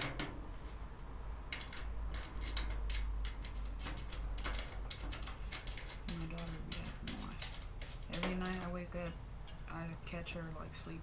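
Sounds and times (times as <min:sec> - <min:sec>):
low steady hum: 0:00.0 - 0:11.0
small clicks and taps: 0:01.5 - 0:09.7.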